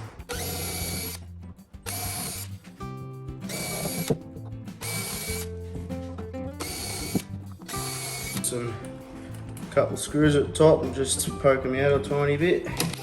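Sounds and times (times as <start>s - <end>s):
rock music: 0.0s - 13.0s
cordless drill boring wood: 0.3s - 1.2s, 1.9s - 2.5s, 3.4s - 4.2s, 4.8s - 5.5s, 6.6s - 8.6s.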